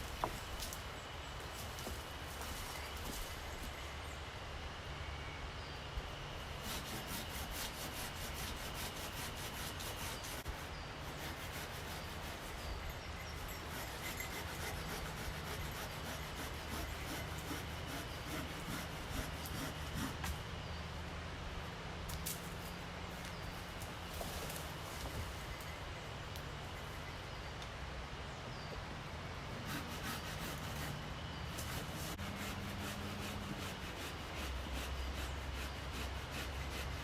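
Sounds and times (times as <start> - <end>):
hand saw cutting branch: 6.5 - 12.7, 13.6 - 20.4, 29.6 - 37.0.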